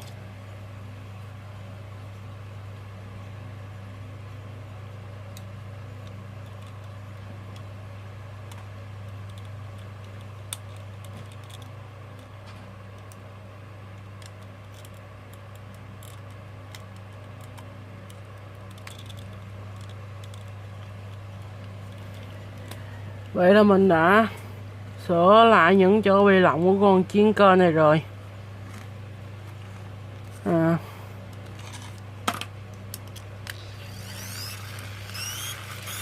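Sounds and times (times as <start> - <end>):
steady low hum: 0.0 - 36.0
plastic toy parts clicking: 14.2 - 22.8.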